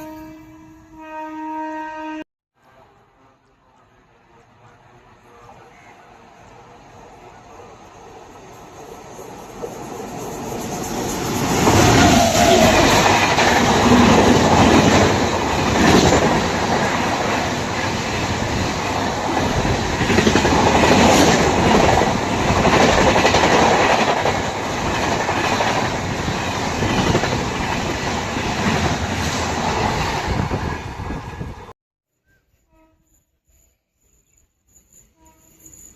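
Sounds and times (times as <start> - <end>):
train wheels rushing on rails: 4.2 - 31.7
clickety-clack of rail joints: 8.5 - 30.8.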